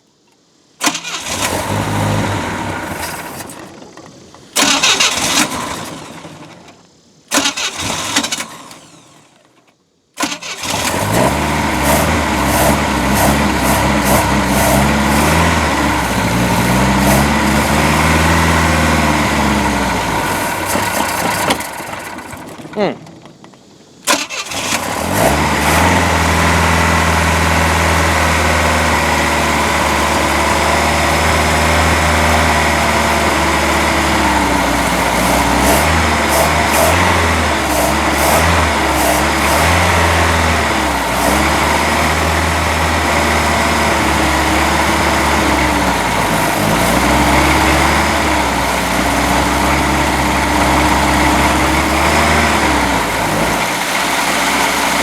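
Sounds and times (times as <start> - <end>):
boat engine running rough: 10.7 - 23.0, 24.8 - 55.0.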